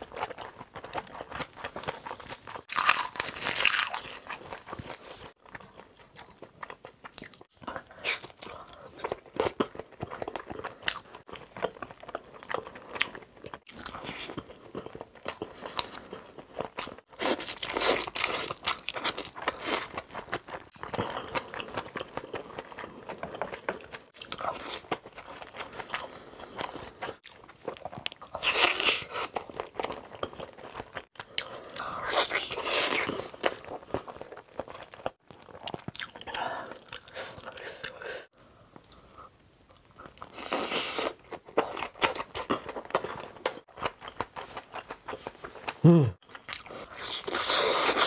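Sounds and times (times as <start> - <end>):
man chewing food: 0.0 - 48.0
crunchy bites: 2.7 - 4.7.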